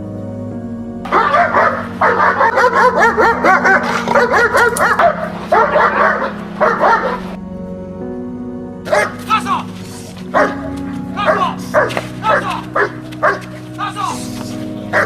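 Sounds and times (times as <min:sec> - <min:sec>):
background music: 0:00.0 - 0:15.0
dog barking sharply: 0:01.1 - 0:07.3, 0:08.9 - 0:09.2, 0:10.4 - 0:13.5.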